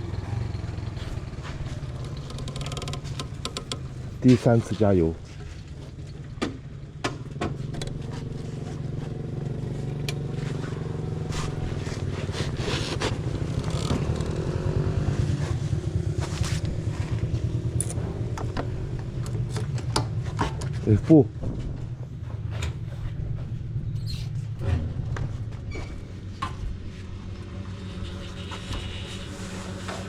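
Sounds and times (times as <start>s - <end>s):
motor running steadily: 16.3s - 20.7s.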